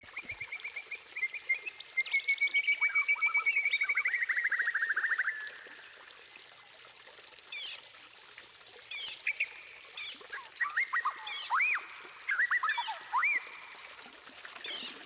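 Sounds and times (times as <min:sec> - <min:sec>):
bird singing whistled notes: 0:00.1 - 0:05.5, 0:09.0 - 0:13.9.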